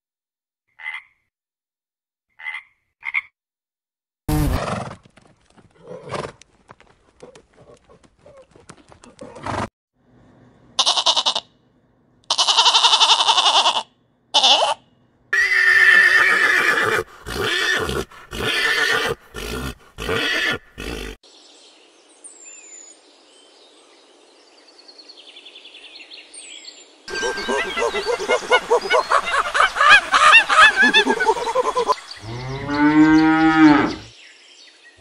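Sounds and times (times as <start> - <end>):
horses whinnying: 15.4 - 21.2, 27.1 - 34.1.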